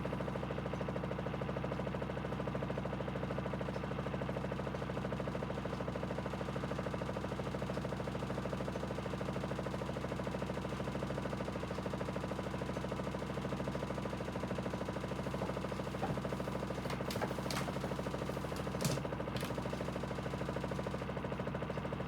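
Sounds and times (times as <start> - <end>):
washing machine spinning: 15.1 - 20.7.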